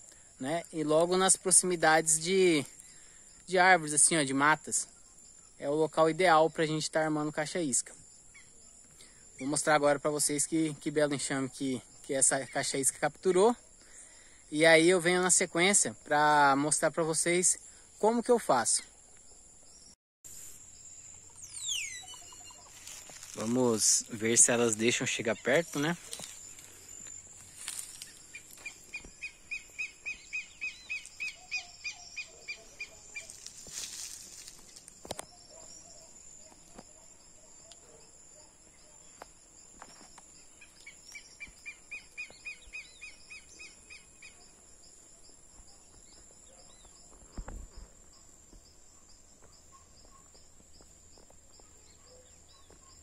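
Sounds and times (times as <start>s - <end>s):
high-pitched insect drone: 14.6s - 37.3s.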